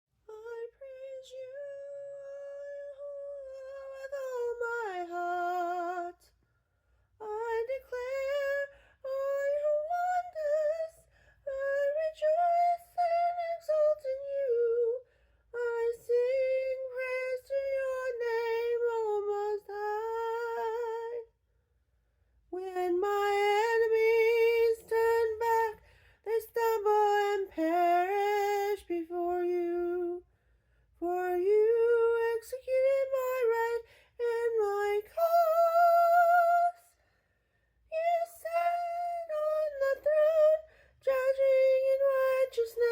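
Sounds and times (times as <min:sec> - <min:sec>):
woman singing: 0:00.2 - 0:06.4, 0:07.2 - 0:21.4, 0:22.5 - 0:30.3, 0:31.0 - 0:37.2, 0:37.8 - 0:42.9.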